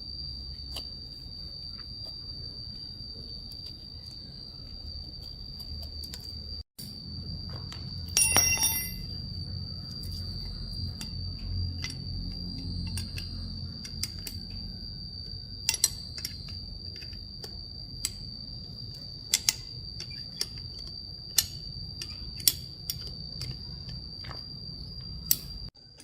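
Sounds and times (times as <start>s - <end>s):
steady high-pitched whine: 0.0s - 26.0s
hand tools tapping on metal: 8.2s - 9.1s.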